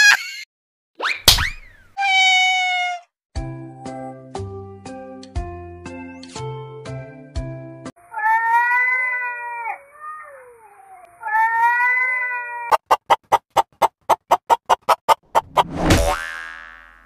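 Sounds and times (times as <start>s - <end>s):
cat meowing: 2.0s - 3.1s, 8.0s - 12.7s.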